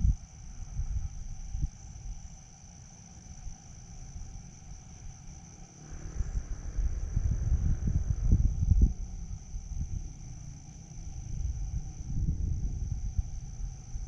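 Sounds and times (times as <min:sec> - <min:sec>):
crickets trilling: 0:00.0 - 0:14.0
low rumble: 0:04.1 - 0:14.0.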